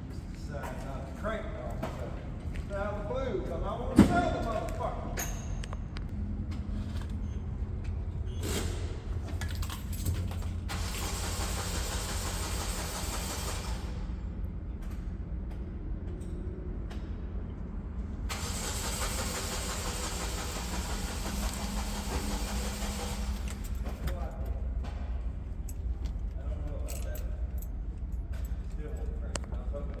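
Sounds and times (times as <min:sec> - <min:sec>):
diesel engine running: 0:08.8 - 0:14.5, 0:17.6 - 0:26.8.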